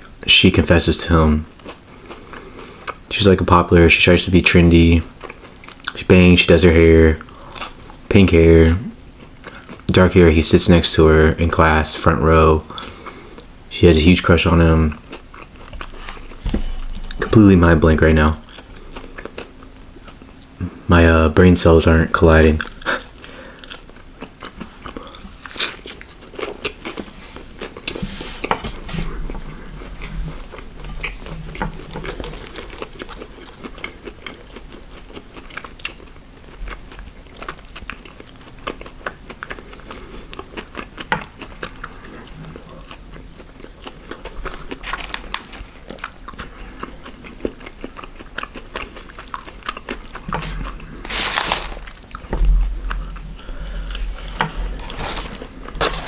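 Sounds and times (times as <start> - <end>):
person chewing and crunching food: 1.4 - 3.1, 5.0 - 6.1, 7.2 - 8.1, 9.1 - 10.2, 14.3 - 21.0, 22.1 - 56.0
loud crunch or rustle: 44.4 - 45.8, 50.2 - 53.0, 53.8 - 56.0.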